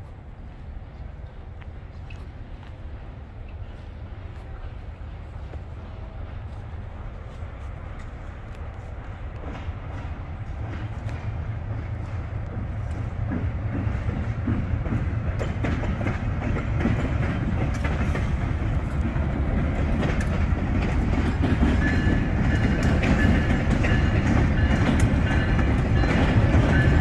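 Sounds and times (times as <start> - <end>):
diesel locomotive rumbling: 0.0 - 27.0
wheels clicking over rails: 9.4 - 27.0.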